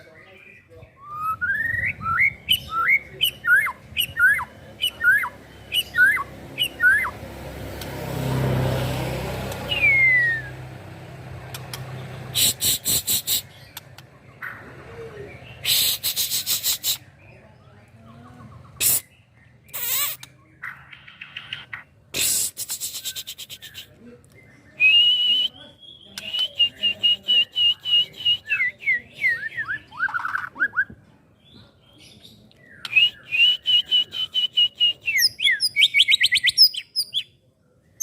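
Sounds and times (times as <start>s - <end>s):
bird whistling song: 0.9s - 7.2s, 9.6s - 10.8s, 15.5s - 17.3s, 24.6s - 31.0s, 32.6s - 37.4s
bird chattering: 1.2s - 7.9s, 9.4s - 17.3s, 18.4s - 24.0s, 32.8s - 37.3s.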